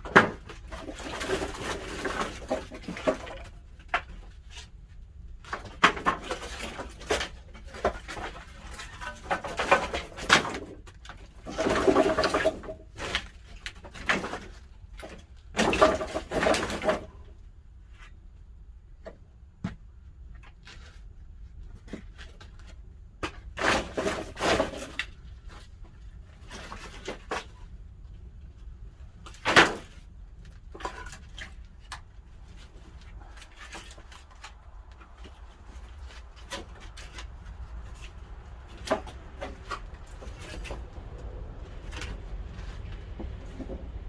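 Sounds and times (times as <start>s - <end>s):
low rumble of fire: 27.5s - 44.0s.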